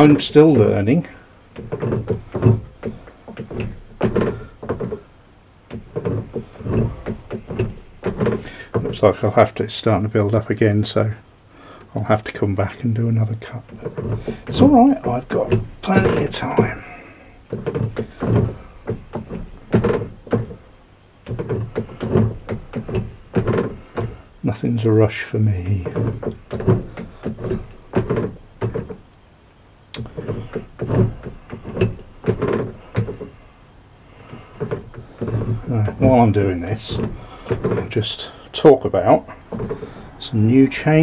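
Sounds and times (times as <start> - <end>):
cutting tool knocking and scraping: 0.0 - 5.1, 5.7 - 9.4, 13.5 - 24.2, 25.6 - 29.1, 30.0 - 33.4, 34.2 - 38.4, 39.0 - 40.2.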